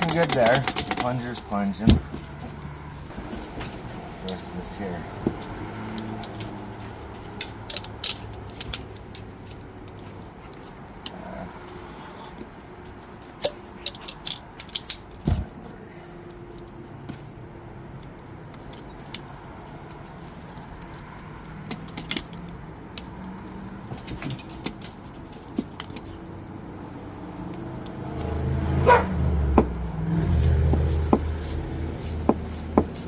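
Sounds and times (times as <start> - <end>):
metal parts clinking: 0.0 - 2.8, 5.9 - 10.0, 13.4 - 15.3, 29.8 - 33.0.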